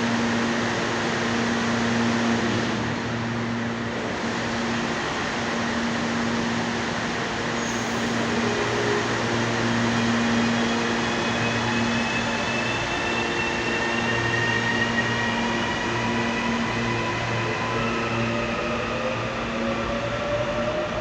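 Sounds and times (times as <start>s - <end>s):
electric train humming: 0.0s - 21.0s
faint high whine: 3.1s - 19.7s.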